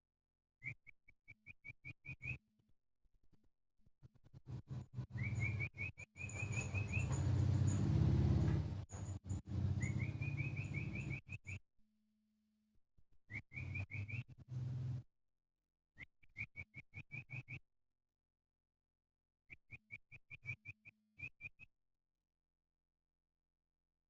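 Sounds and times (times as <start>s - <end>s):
bird chirping: 0.6s - 2.4s, 5.0s - 11.6s, 13.3s - 14.7s, 16.0s - 17.6s.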